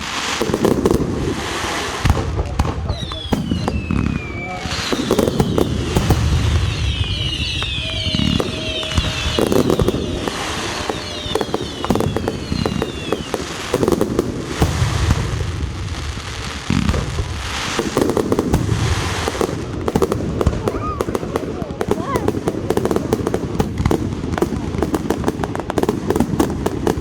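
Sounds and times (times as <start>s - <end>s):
firework booms: 0.0s - 27.0s
firework crackling: 0.0s - 27.0s
falling whistles: 2.9s - 13.7s.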